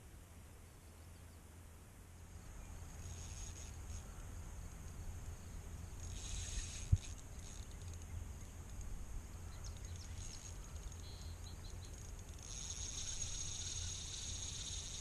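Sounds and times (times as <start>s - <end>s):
high-pitched buzz: 12.2s - 15.0s.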